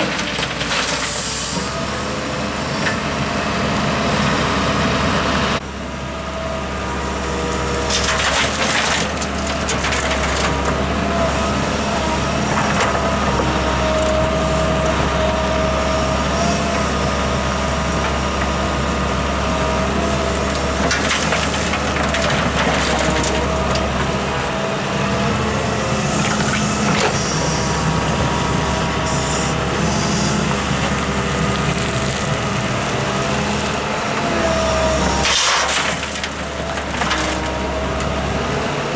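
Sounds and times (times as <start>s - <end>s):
diesel engine under load: 0.0s - 38.9s
digging and scraping: 7.9s - 38.3s.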